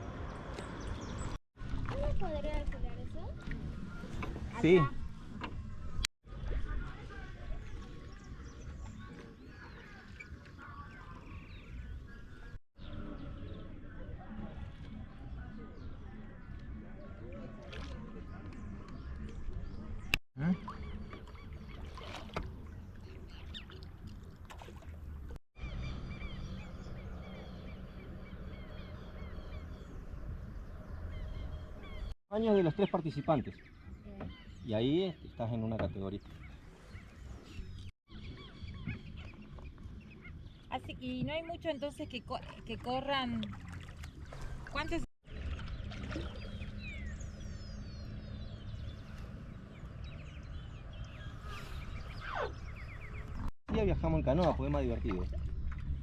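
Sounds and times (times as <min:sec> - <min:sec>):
paddles splashing in water: 0:00.4 - 0:05.7, 0:06.3 - 0:12.4, 0:17.2 - 0:25.4, 0:42.2 - 0:47.4, 0:51.4 - 0:56.0
birds whistling and chirping: 0:03.2 - 0:06.0, 0:18.6 - 0:23.8, 0:25.6 - 0:42.3, 0:45.4 - 0:53.5.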